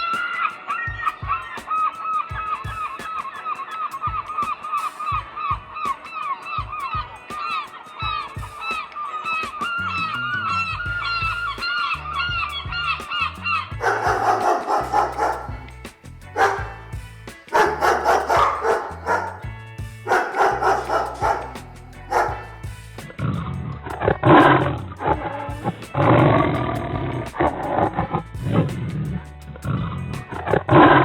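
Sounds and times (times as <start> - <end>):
animal cries: 0.0 - 15.6, 16.4 - 16.8, 17.5 - 19.5, 20.1 - 22.6
background music with bass line: 0.0 - 31.0.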